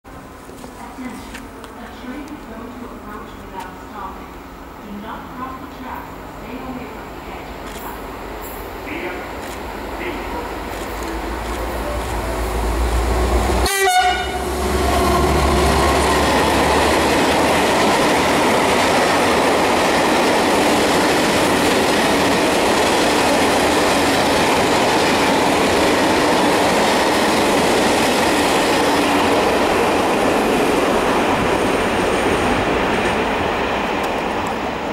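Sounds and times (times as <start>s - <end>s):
diesel locomotive engine hum: 0.1s - 34.9s
train wheels rumbling on rail: 6.6s - 34.9s
train horn blast: 11.6s - 15.5s.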